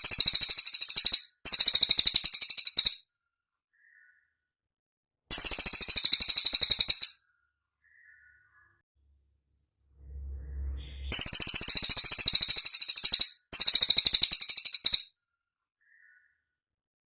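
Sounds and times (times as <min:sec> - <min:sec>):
brief low rumble: 0:09.0 - 0:11.9
bird singing high-pitched trills: 0:10.1 - 0:15.1.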